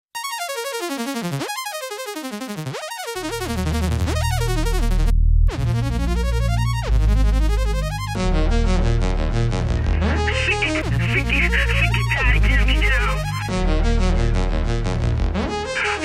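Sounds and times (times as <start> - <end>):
synthesizer arpeggios: 0.4 - 15.8
deep bass line: 3.4 - 15.7.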